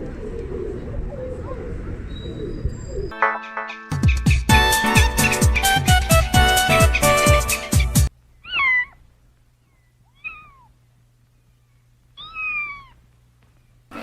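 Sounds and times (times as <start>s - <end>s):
music: 3.1s - 8.1s
animal crying meow-like: 8.4s - 9.0s, 10.1s - 10.7s, 12.2s - 13.0s.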